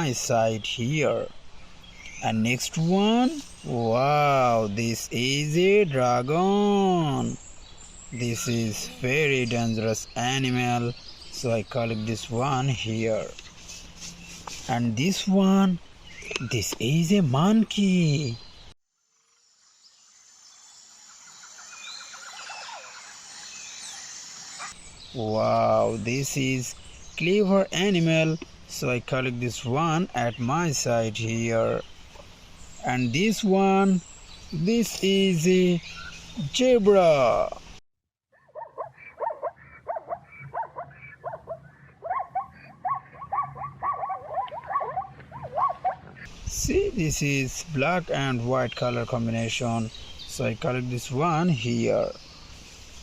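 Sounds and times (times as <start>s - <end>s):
bird chirps: 0.0s - 18.8s, 19.8s - 37.8s, 38.4s - 53.0s
zebra barking calls: 8.2s - 9.9s, 38.4s - 46.3s
high insect drone: 19.0s - 27.4s.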